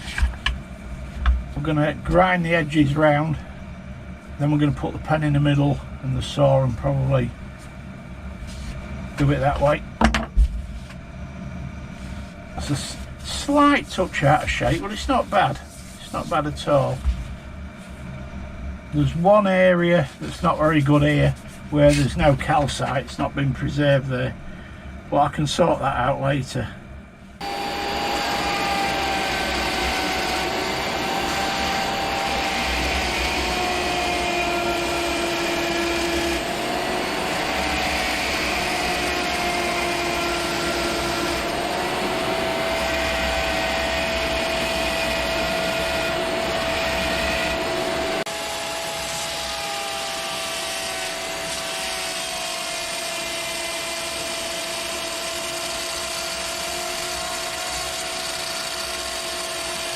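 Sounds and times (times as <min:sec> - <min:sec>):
power tool whining on stone: 0:27.4 - 0:59.9.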